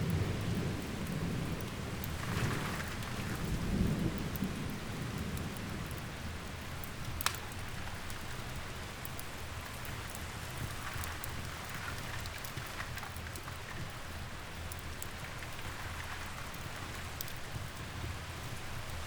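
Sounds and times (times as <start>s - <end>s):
low thunder rumble: 0.0s - 7.8s
steady rain: 0.0s - 19.0s
wood fire crackling: 0.0s - 19.0s.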